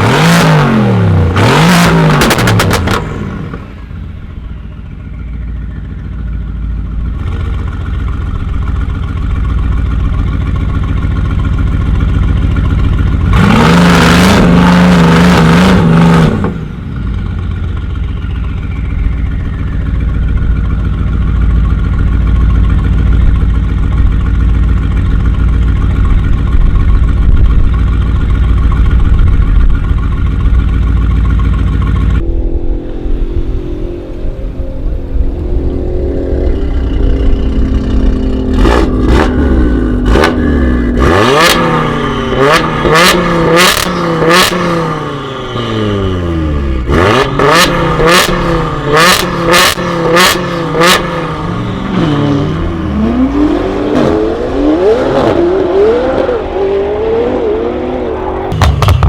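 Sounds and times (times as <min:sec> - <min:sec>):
car engine revving and idling: 0:00.0 - 0:59.0.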